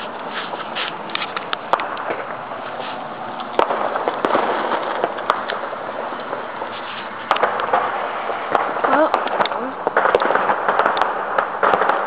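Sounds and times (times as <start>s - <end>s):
firework bangs: 0.0s - 12.0s
firework crackle: 0.0s - 12.0s.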